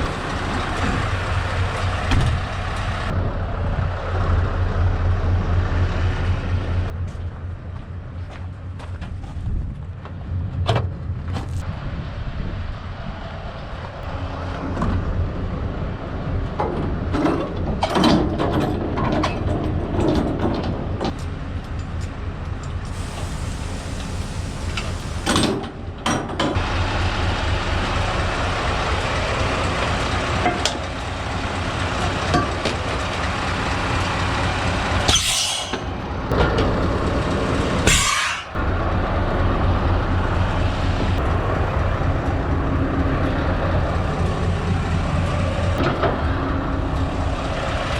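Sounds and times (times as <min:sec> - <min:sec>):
engine knocks: 0:00.0 - 0:11.6, 0:13.8 - 0:35.2, 0:35.8 - 0:47.9
diesel engine running at low revs: 0:00.0 - 0:47.9
air brake hisses: 0:22.9 - 0:25.4, 0:35.1 - 0:35.9, 0:37.8 - 0:38.6.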